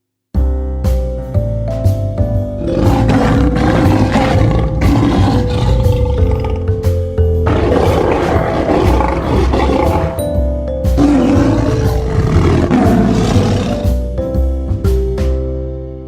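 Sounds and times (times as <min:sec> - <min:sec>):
background music: 0:00.4 - 0:16.0
big cat roaring: 0:02.6 - 0:06.8, 0:07.5 - 0:10.3, 0:11.0 - 0:14.0.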